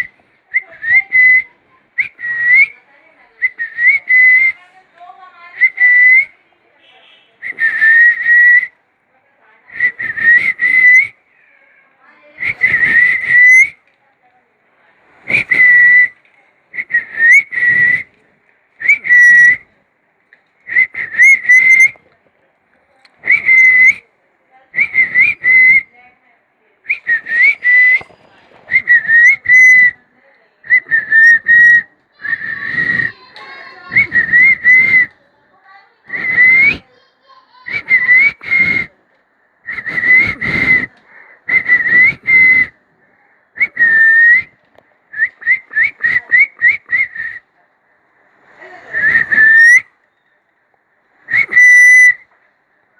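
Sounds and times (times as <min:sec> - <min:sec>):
parakeet whistle-like calls: 0:21.0 - 0:22.0, 0:51.3 - 0:52.2.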